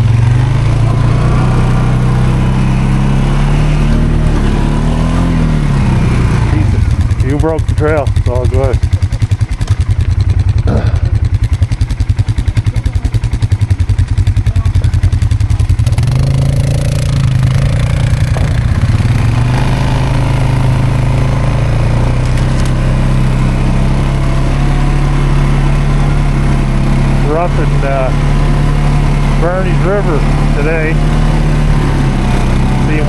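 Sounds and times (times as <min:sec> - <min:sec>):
atv engine chugging: 0:00.0 - 0:33.0.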